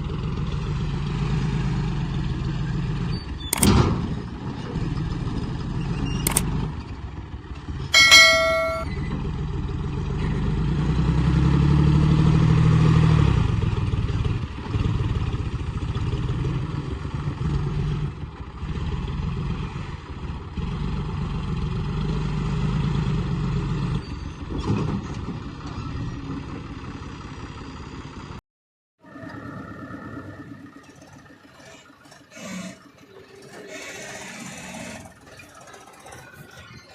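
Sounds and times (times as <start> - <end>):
ringing metallic clang: 8.0 - 8.9.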